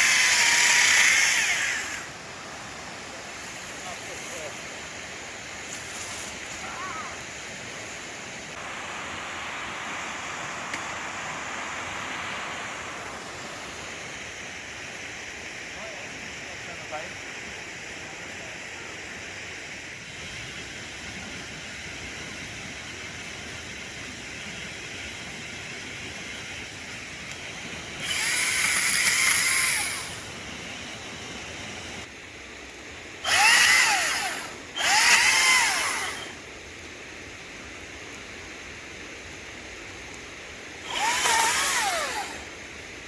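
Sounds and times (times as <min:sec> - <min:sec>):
battery chainsaw whining: 0:00.0 - 0:04.7, 0:28.0 - 0:30.4, 0:33.2 - 0:36.4, 0:40.8 - 0:42.6.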